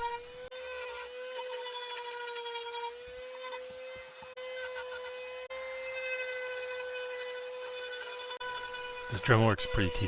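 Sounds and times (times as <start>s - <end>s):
rotary tool carving wood: 0.0s - 10.0s.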